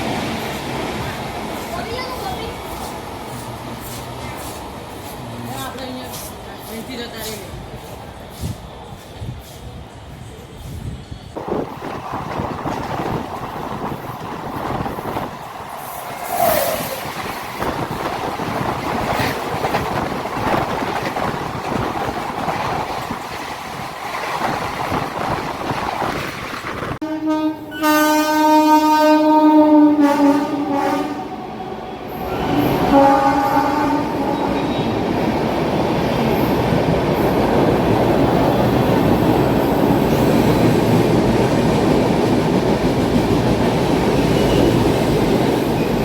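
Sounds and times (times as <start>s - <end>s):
locomotive horn: 27.0s - 31.6s, 32.8s - 34.8s.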